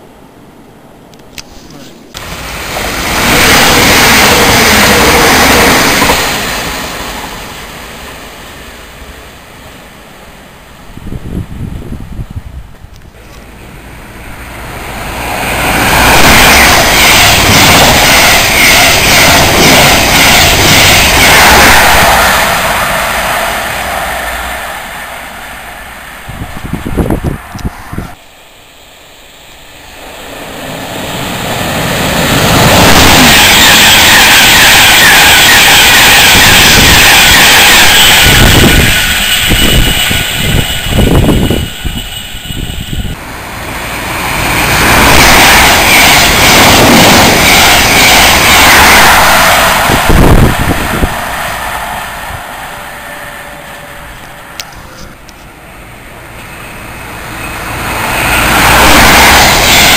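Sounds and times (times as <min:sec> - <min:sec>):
trains passing at speed: 0:00.0 - 0:59.9
train wheels clattering: 0:02.2 - 0:07.8, 0:15.1 - 0:25.8.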